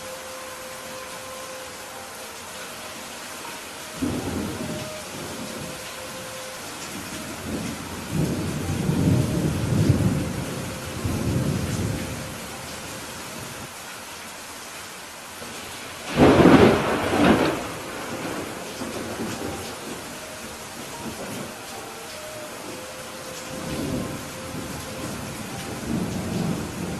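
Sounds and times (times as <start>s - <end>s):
steady rain: 0.0s - 26.9s
low rumble of thunder: 4.0s - 12.8s, 16.1s - 21.6s, 23.4s - 26.9s
sharp thunderclap: 16.1s - 19.4s.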